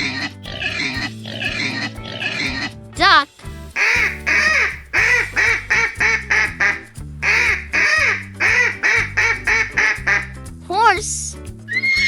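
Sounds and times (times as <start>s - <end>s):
background music: 0.0s - 12.0s
duck quacking: 3.8s - 10.3s.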